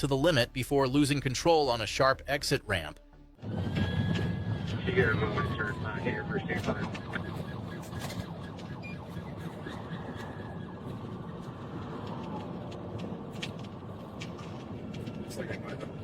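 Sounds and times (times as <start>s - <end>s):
police siren wailing: 3.4s - 16.0s
vehicle road and engine noise: 3.4s - 16.0s.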